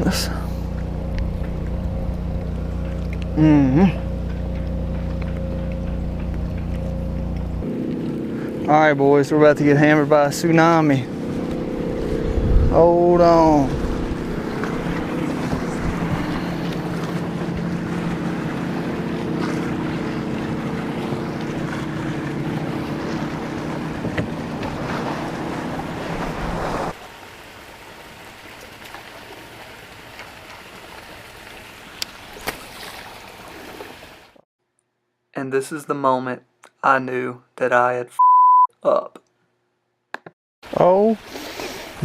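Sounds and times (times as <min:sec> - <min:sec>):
boat engine droning: 0:00.0 - 0:27.0
water splashing: 0:00.0 - 0:34.4
heavy wind: 0:11.1 - 0:18.4.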